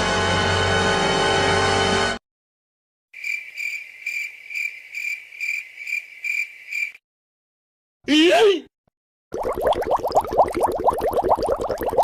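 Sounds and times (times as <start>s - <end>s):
crickets chirping: 3.2s - 7.0s.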